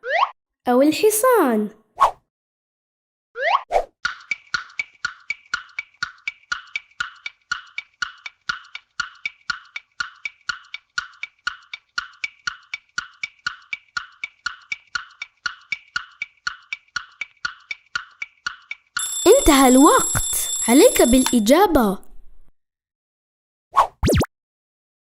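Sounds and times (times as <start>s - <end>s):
wood-block clock ticks: 4.1s - 21.6s.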